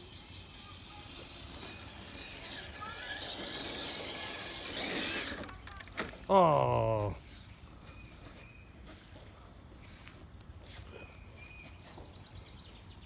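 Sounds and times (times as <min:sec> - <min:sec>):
toy truck electric motor whirring: 0:00.0 - 0:06.2.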